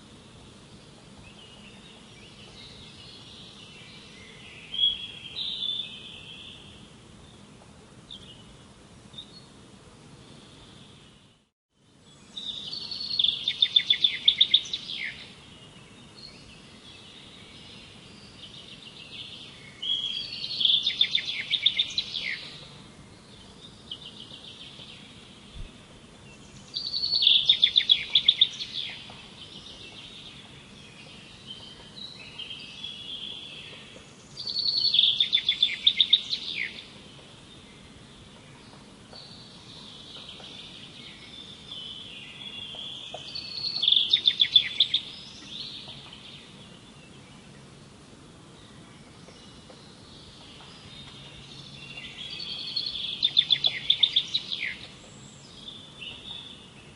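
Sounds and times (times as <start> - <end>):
songbird trilling: 12.4 - 15.4, 18.3 - 22.7, 26.5 - 36.9, 38.5 - 46.5, 50.2 - 56.7.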